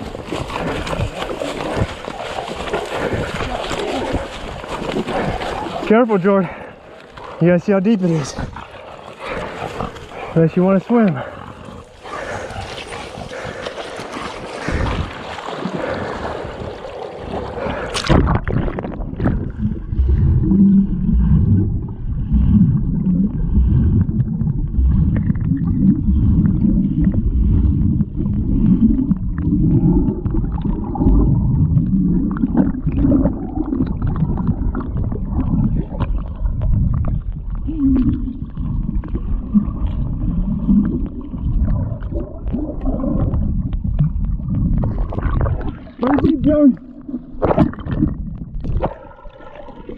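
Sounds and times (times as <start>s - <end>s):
muffled underwater sound: 0.0s - 49.9s
water sloshing as people wade: 0.0s - 49.9s.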